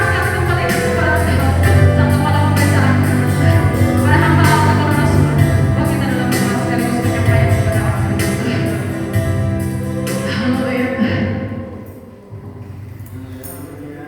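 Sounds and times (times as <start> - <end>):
regular beat: 0.0 - 11.1
sustained bass notes: 0.0 - 11.7
voices singing worship song: 0.0 - 12.4.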